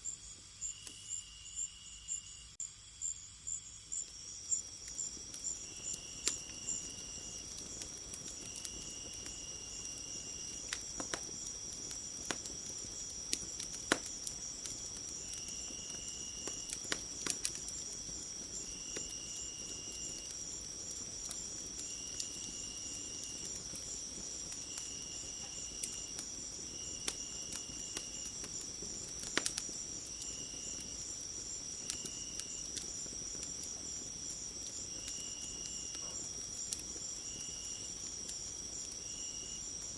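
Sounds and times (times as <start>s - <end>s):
crickets trilling: 0.0s - 39.9s
wood fire crackling: 4.1s - 39.9s.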